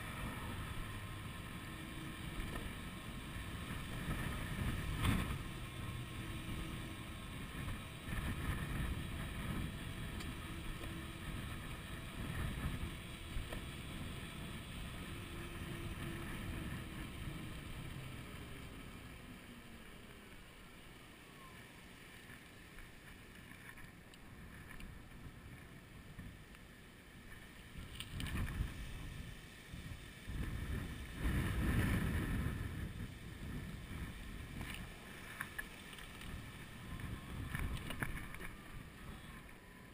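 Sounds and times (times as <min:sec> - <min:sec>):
wind buffeting microphone: 0:00.0 - 0:19.5, 0:27.3 - 0:39.9
faint whine falling in pitch: 0:00.0 - 0:39.9.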